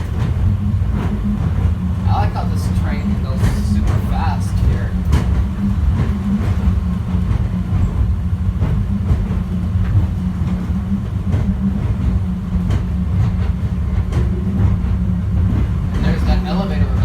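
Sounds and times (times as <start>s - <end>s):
train rumbling at speed: 0.0s - 17.0s.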